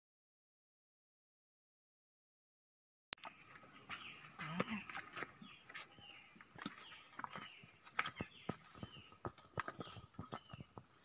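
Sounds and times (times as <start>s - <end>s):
small birds chirping: 3.2s - 11.0s.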